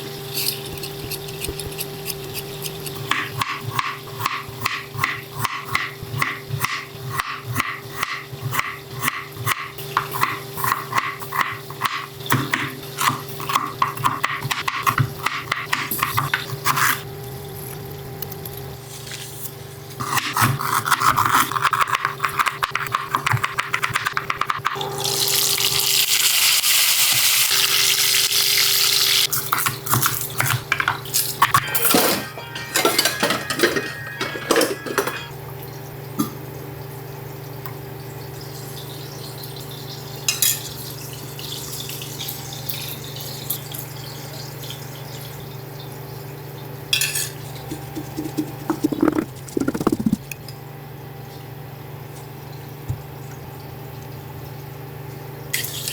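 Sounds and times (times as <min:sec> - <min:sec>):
kitchen tap running: 0:21.6 - 0:30.8, 0:33.0 - 0:50.4
dishes and utensils clattering: 0:29.4 - 0:35.4, 0:46.9 - 0:50.2.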